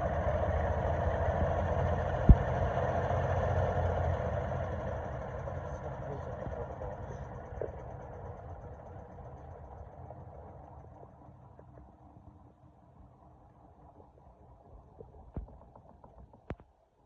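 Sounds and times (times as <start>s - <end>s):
sharp knock: 2.3s - 2.5s.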